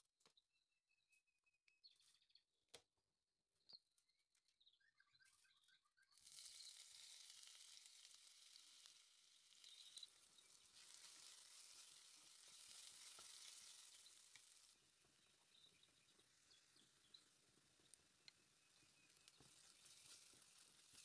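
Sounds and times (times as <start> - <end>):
faint clicks and chirps: 3.6 - 21.0
onions sizzling in oil: 6.2 - 21.0.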